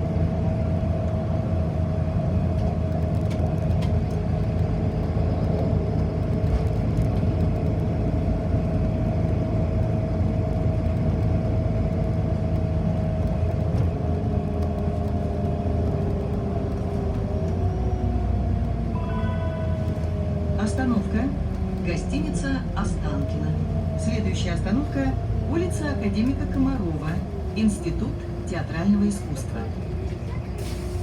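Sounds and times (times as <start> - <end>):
bus drivetrain and road rumble: 0.0 - 31.0.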